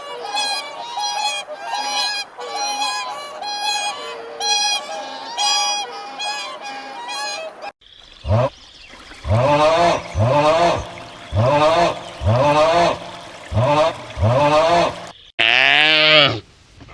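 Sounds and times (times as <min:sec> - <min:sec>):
geese honking: 0:08.2 - 0:15.6
low falling goose call: 0:09.2 - 0:15.8.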